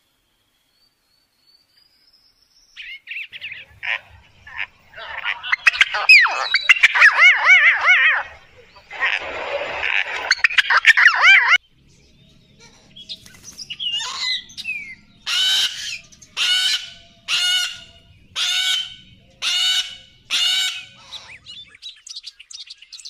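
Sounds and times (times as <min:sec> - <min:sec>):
cockatoo screeching: 0:03.4 - 0:11.6, 0:13.9 - 0:14.4.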